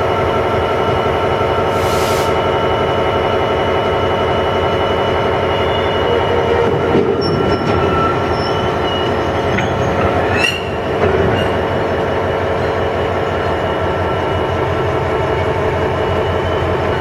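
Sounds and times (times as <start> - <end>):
diesel locomotive engine rumble: 0.0 - 17.0
wheels squealing: 5.4 - 11.7
short wheel squeaks: 5.5 - 11.7.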